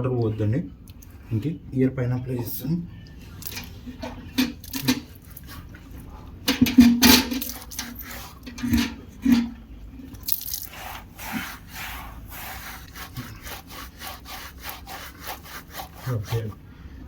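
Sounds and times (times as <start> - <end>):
hands rubbing wet dog fur: 10.3 - 16.6.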